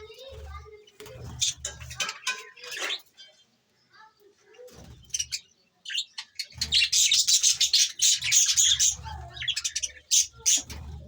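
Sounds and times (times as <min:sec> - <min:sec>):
budgerigars chirping: 0:05.1 - 0:10.8.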